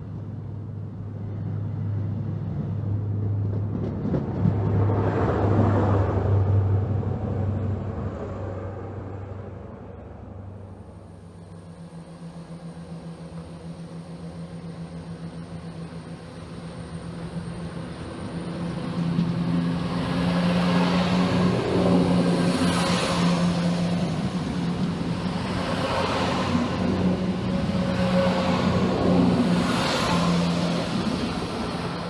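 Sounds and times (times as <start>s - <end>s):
diesel engine hum: 0.0s - 32.0s
train wheels rushing on rails: 1.4s - 9.5s, 11.1s - 32.0s.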